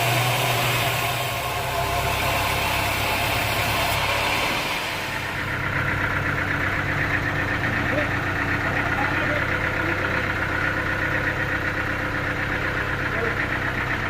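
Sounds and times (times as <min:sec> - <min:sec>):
pulsing high-pitched whine: 0:00.0 - 0:07.6
engine idling: 0:00.0 - 0:14.0.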